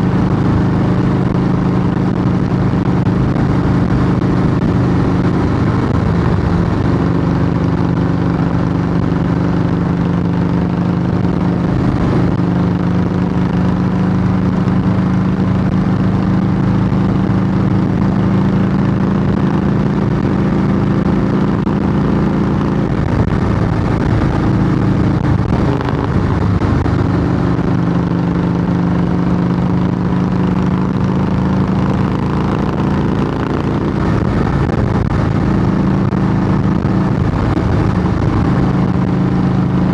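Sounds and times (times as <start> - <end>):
motorcycle exhaust note: 0.0 - 39.9.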